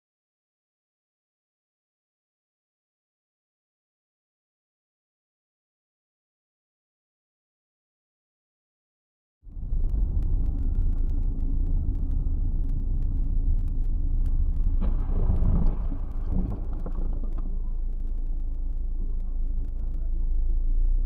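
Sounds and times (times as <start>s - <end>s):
road and engine rumble: 9.4s - 21.0s
faint clicks: 9.5s - 20.2s.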